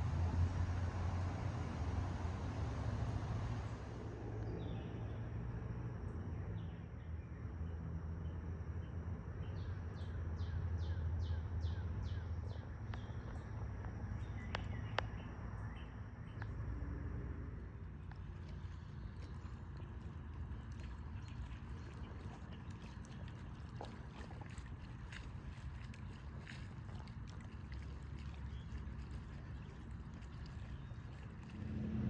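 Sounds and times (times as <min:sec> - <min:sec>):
low rumble: 0:13.0 - 0:32.0.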